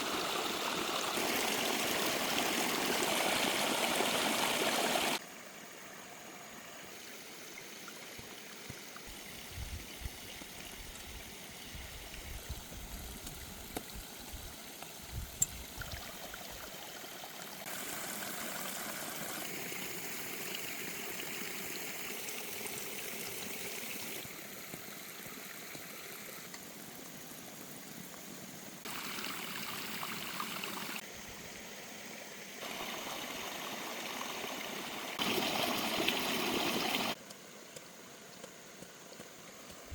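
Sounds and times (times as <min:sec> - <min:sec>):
stream water rushing: 0:00.0 - 0:05.2, 0:15.6 - 0:27.2, 0:28.5 - 0:31.1, 0:32.6 - 0:37.2.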